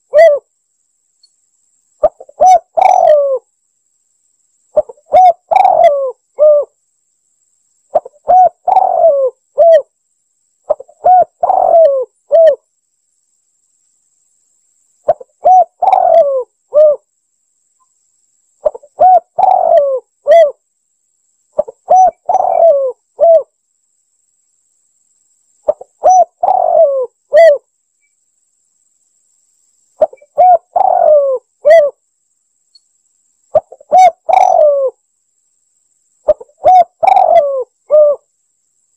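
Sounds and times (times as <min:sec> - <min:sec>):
dove cooing: 0:00.0 - 0:00.5, 0:02.0 - 0:03.5, 0:04.8 - 0:06.8, 0:07.9 - 0:09.9, 0:10.7 - 0:12.6, 0:15.1 - 0:17.0, 0:18.6 - 0:20.6, 0:21.6 - 0:23.5, 0:25.7 - 0:27.6, 0:30.0 - 0:32.0, 0:33.5 - 0:35.0, 0:36.2 - 0:38.3.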